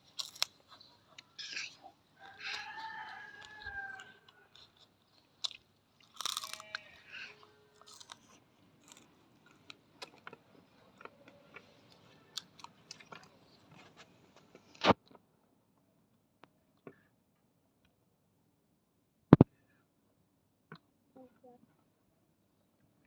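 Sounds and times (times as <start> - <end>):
person chewing and crunching food: 0.0 - 14.8.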